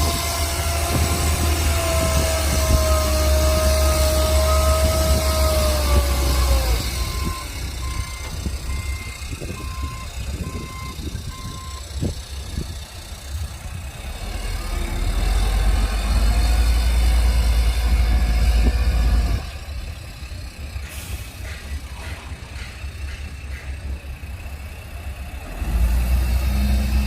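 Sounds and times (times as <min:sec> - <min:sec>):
diesel engine rumbling: 0:00.0 - 0:27.0
reversing alarm beeping: 0:02.1 - 0:11.9.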